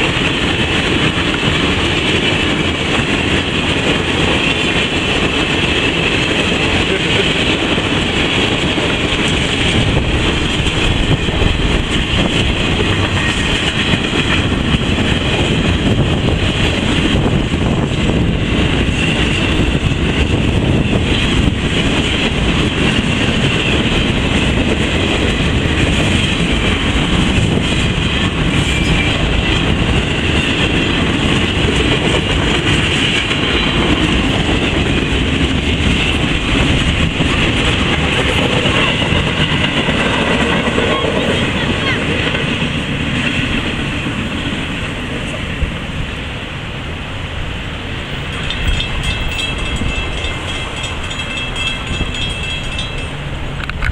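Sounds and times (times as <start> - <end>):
train wheels on rail: 0.0 - 53.9.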